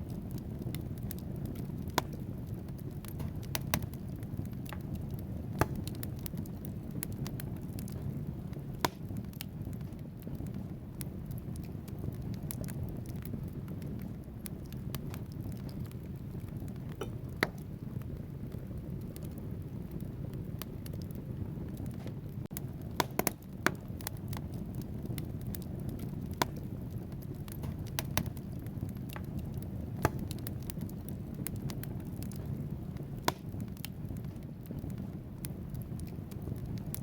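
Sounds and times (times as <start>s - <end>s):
logs crackling and popping: 0.0s - 37.0s
low rumble of flames: 0.0s - 37.0s.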